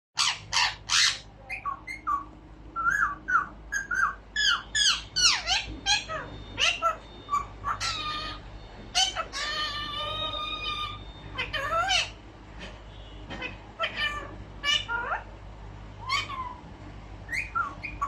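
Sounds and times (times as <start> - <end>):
parakeet whistled chirps: 0.2 - 12.2, 17.3 - 18.0
parakeet harsh screeches: 0.2 - 15.3, 16.0 - 16.6.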